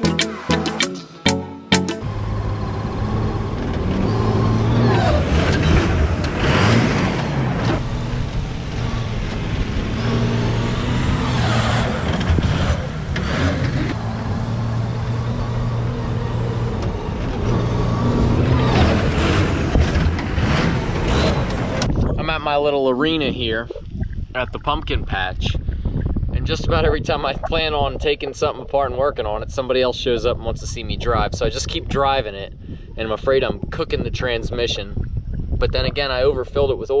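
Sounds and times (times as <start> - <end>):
diesel truck engine running: 2.1 - 22.0.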